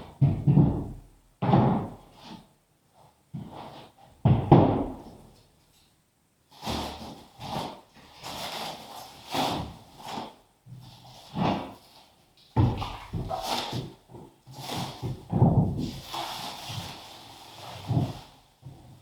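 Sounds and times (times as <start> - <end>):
soft scraping and rustling: 5.4 - 19.0.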